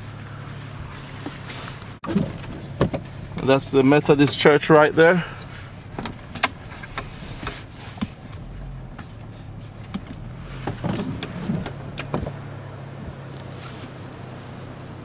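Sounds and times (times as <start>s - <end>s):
car cabin engine hum: 0.0s - 15.0s
sharp clicks and knocks: 5.9s - 12.4s.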